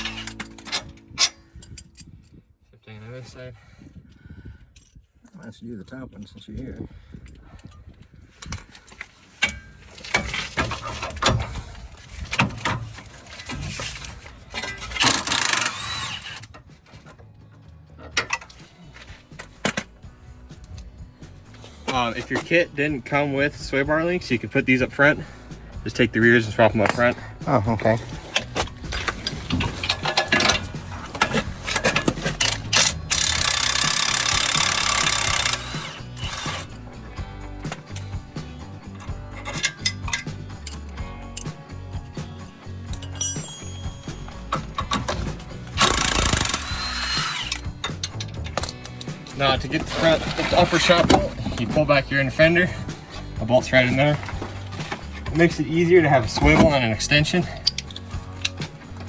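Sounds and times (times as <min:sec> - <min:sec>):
background music: 0:00.0 - 0:01.8, 0:09.6 - 0:59.0
hand tools clicking and knocking on metal: 0:00.0 - 0:02.2, 0:08.4 - 0:20.0, 0:27.8 - 0:36.8, 0:38.9 - 0:41.6, 0:44.2 - 0:59.0
tool rasping: 0:14.8 - 0:16.5, 0:28.1 - 0:36.8, 0:45.2 - 0:48.2, 0:49.8 - 0:51.8
power tool running: 0:15.0 - 0:16.5, 0:32.9 - 0:36.8, 0:45.8 - 0:47.7
metal tool clinks: 0:42.9 - 0:45.0.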